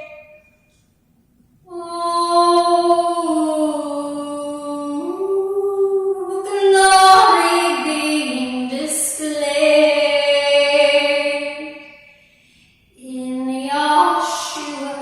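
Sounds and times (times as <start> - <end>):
woman singing long notes: 13.0 - 15.0.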